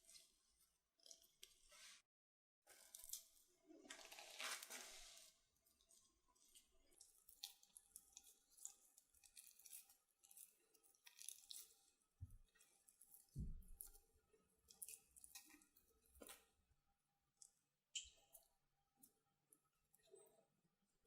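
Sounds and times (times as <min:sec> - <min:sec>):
food crunching and rustling: 0:02.7 - 0:16.6.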